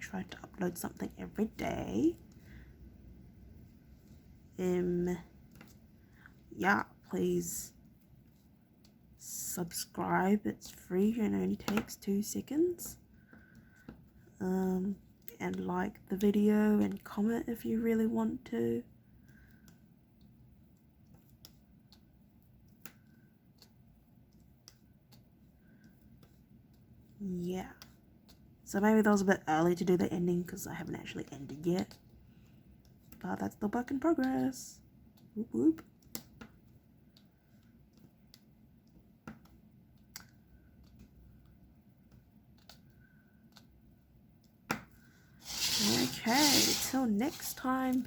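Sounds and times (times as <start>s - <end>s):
pen clicks and taps: 11.6s - 11.9s, 42.1s - 43.7s.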